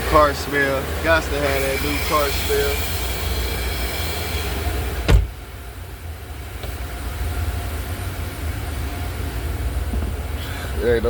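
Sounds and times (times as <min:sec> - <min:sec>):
high hiss: 0:00.2 - 0:05.5
sharp knock: 0:05.1 - 0:05.3.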